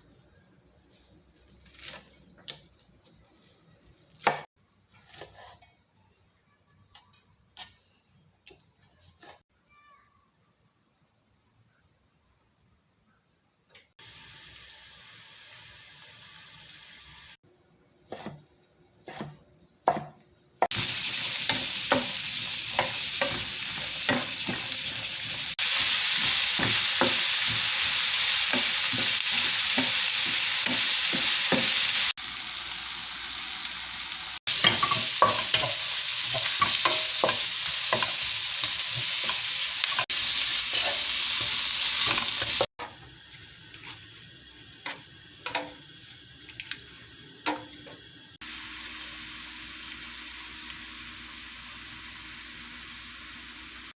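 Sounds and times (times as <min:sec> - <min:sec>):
spatula scraping a pan: 0:04.9 - 0:05.8, 0:18.0 - 0:18.4, 0:19.0 - 0:20.1, 0:20.7 - 0:32.1, 0:34.5 - 0:42.7
food sizzling in a pan: 0:14.0 - 0:17.4, 0:20.6 - 0:53.9.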